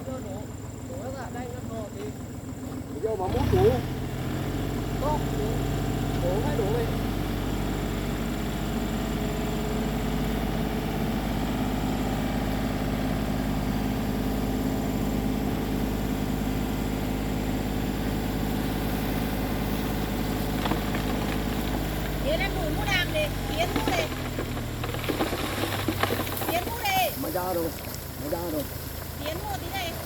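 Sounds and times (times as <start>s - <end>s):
tractor engine idling: 0.0s - 30.0s.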